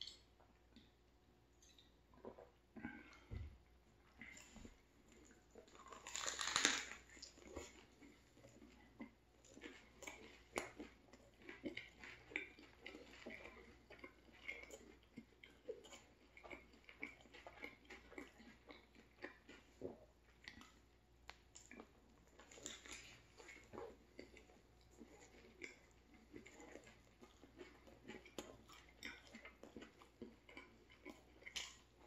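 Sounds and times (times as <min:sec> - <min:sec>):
chewing food: 0:00.0 - 0:32.0
biting into sandwich: 0:05.7 - 0:07.7.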